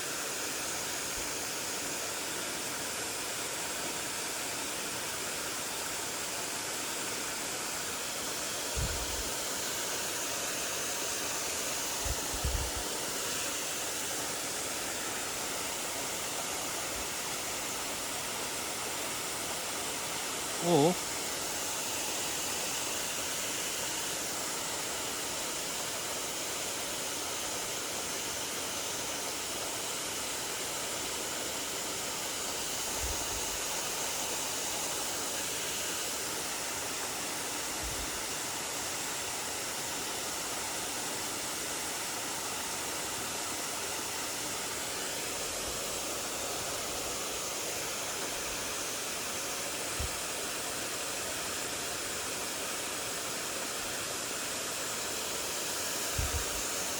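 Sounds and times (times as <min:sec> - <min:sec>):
stream rushing over rocks: 0:00.0 - 0:56.9.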